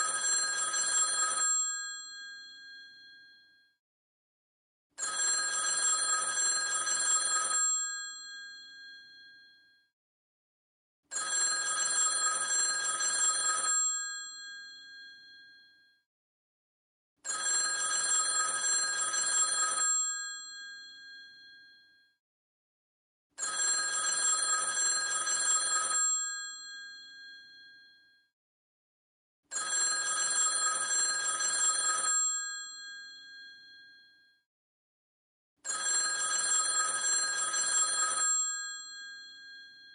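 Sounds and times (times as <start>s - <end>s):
old telephone bell ringing: 0.2s - 1.7s, 5.0s - 7.9s, 11.1s - 13.8s, 17.3s - 20.6s, 23.4s - 27.3s, 29.5s - 32.6s, 35.7s - 39.7s.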